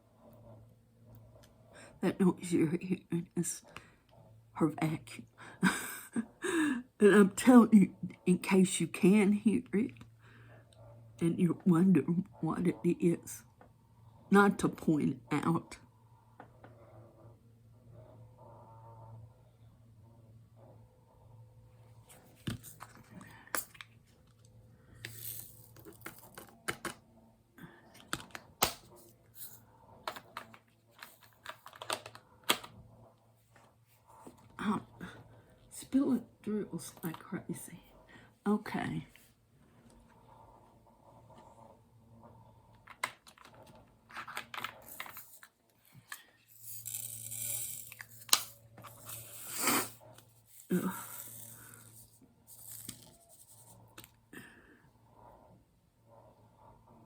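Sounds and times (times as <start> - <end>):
small plastic clicks and rattles: 30.0 - 32.8.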